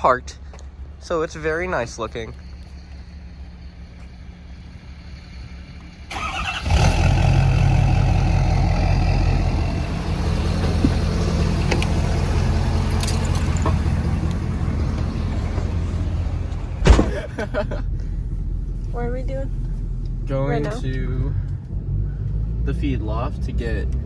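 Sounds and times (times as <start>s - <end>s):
truck engine starting and running: 4.4s - 24.0s
sharp thump: 16.6s - 17.4s.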